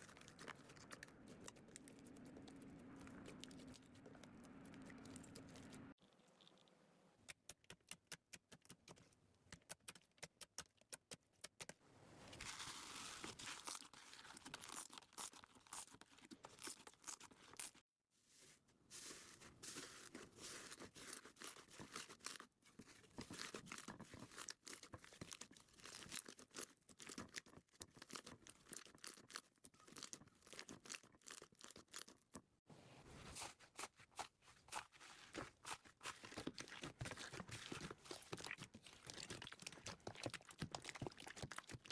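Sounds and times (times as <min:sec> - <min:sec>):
slime clicking and crackling: 0:35.6 - 0:41.9.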